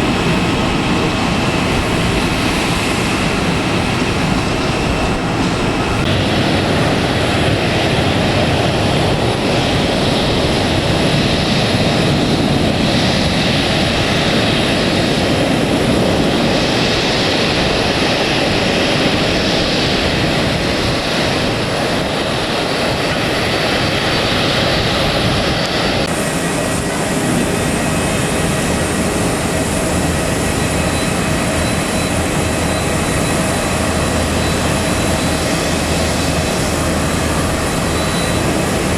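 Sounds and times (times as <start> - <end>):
jet engines running: 0.0 - 38.9.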